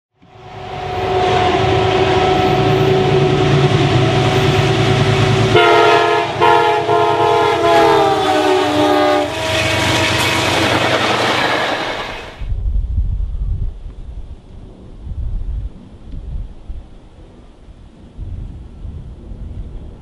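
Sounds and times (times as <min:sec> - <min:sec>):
train rumbling past: 0:00.2 - 0:20.0
train air horn blasts: 0:00.3 - 0:12.2.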